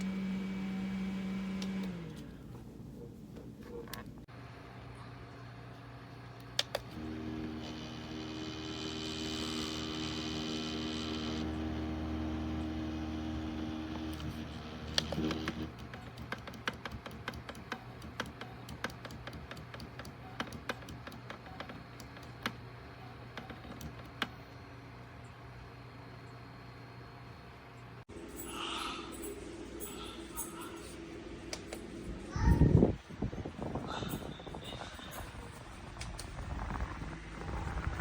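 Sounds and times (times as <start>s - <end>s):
fan motor whine: 0.0s - 3.0s, 4.2s - 38.0s
fan motor humming: 0.0s - 38.0s.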